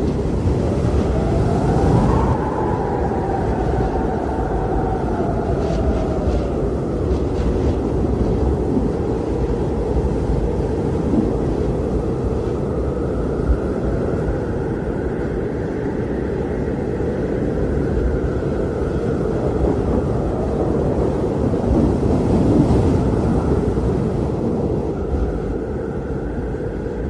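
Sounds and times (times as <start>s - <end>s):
blizzard wind rushing: 0.0s - 27.0s.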